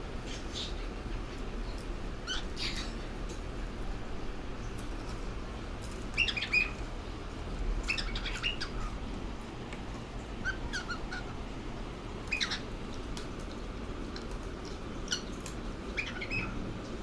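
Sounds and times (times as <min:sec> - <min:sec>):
cockatiel chirping: 0:02.2 - 0:03.0, 0:06.2 - 0:06.8, 0:07.9 - 0:08.9, 0:10.4 - 0:11.4, 0:12.3 - 0:12.7, 0:15.1 - 0:16.6.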